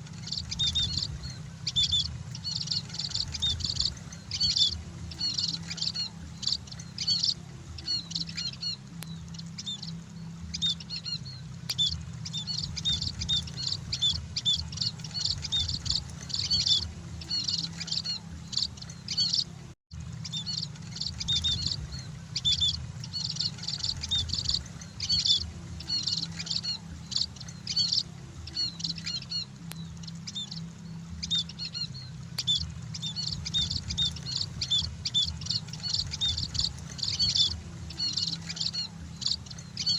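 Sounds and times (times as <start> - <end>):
birds chirping: 0.0 - 39.9
steady low hum: 0.0 - 39.9.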